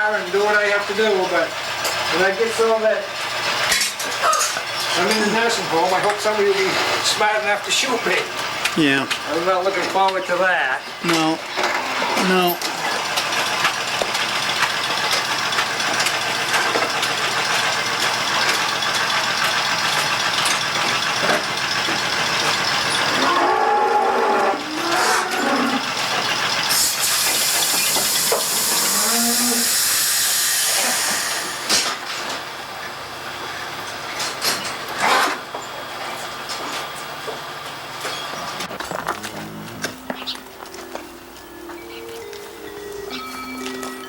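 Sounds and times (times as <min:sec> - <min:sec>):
loud hissing noise: 0:26.7 - 0:31.9.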